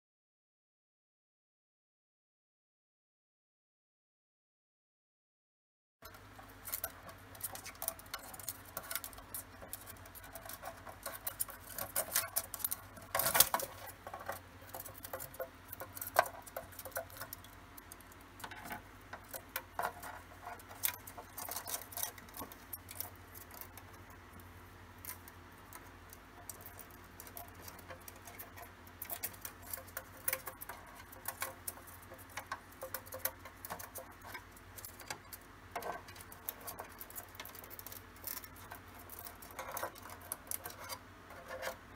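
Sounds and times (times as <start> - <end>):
bird claws scratching on plastic: 6.5 - 24.1, 25.0 - 41.9.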